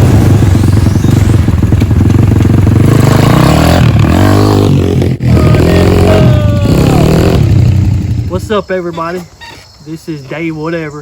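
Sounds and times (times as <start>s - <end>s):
dirt bike engine revving: 0.0s - 8.7s.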